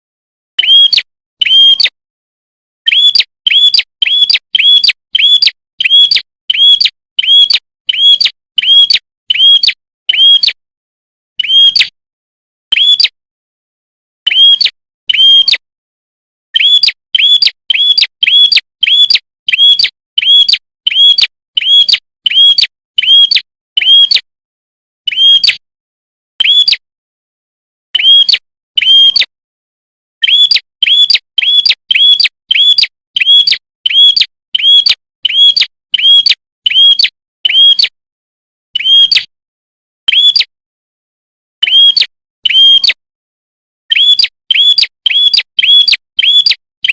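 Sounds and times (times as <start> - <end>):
songbird sharp chirps: 0.6 - 2.0, 2.8 - 10.6, 12.7 - 13.2, 14.2 - 15.6, 16.5 - 24.3, 26.4 - 26.8, 28.0 - 29.3, 30.2 - 38.0, 38.8 - 39.3, 40.1 - 40.5, 41.6 - 43.0, 43.9 - 46.9.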